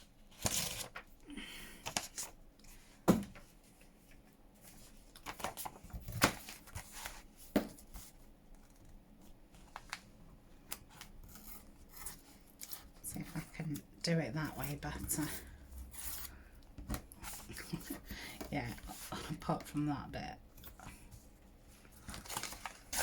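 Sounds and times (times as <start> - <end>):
paper tearing and rustling: 0.3 - 1.0, 22.0 - 23.0.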